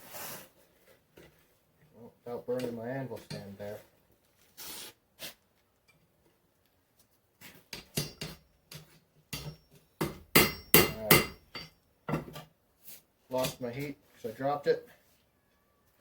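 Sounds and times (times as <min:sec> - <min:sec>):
hammer clanking on anvil: 0:09.4 - 0:12.3.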